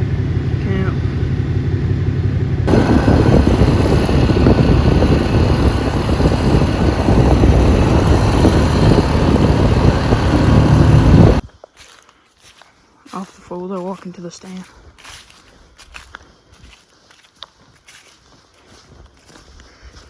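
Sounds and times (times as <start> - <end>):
loud wind and road noise: 0.0 - 11.4
vehicle engine running: 0.0 - 11.4.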